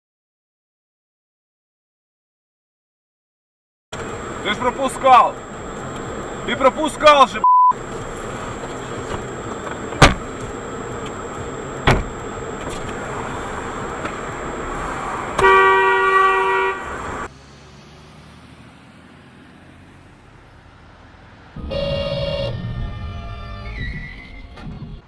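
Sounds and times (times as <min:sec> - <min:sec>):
car engine and road noise: 0:03.9 - 0:25.0
sharp knocks: 0:11.8 - 0:12.1
car horn honking: 0:15.3 - 0:17.3, 0:21.6 - 0:23.5.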